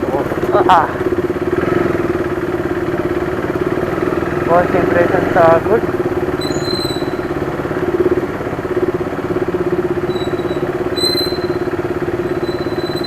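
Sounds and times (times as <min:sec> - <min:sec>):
motorcycle engine running at low revs: 0:00.0 - 0:13.0
thin high squeal: 0:06.4 - 0:07.3, 0:10.0 - 0:13.0.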